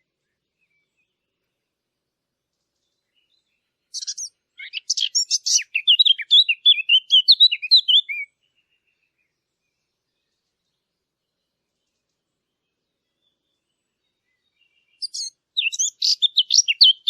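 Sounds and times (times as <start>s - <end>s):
songbird singing: 0.0s - 17.0s.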